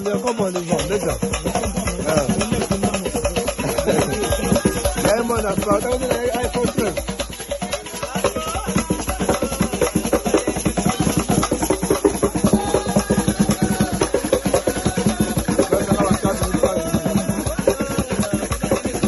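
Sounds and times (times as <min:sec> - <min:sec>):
fast dense drumming: 0:00.0 - 0:19.0
voices singing: 0:00.0 - 0:19.0.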